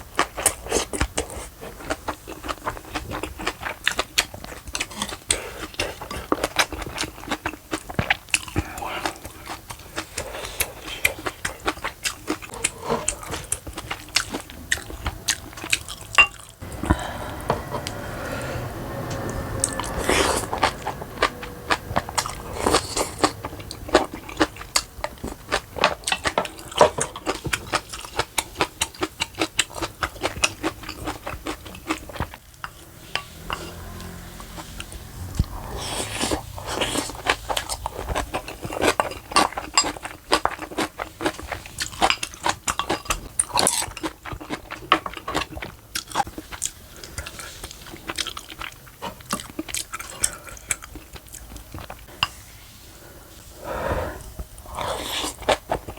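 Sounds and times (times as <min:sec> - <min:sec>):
person chewing crunchy food: 0:00.0 - 0:52.4, 0:54.2 - 0:55.9.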